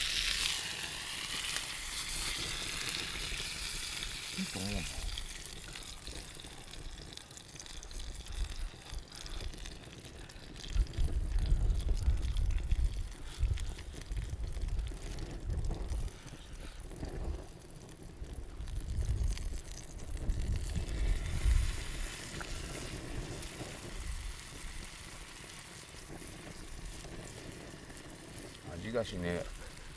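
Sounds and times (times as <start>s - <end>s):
wind buffeting microphone: 10.8s - 17.4s, 18.2s - 24.8s.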